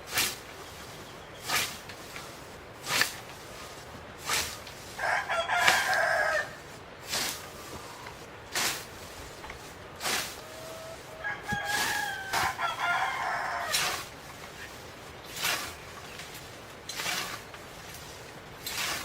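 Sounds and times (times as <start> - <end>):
rooster crowing: 4.9 - 6.6, 10.4 - 14.0.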